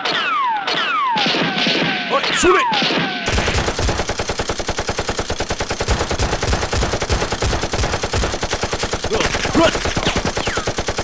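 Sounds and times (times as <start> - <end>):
automatic gunfire: 3.3 - 11.0.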